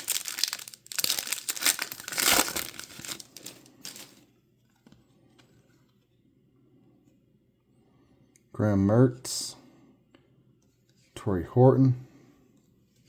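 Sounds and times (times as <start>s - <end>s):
cards being handled: 0.0s - 4.2s
foil wrapper tearing and crinkling: 0.0s - 4.2s.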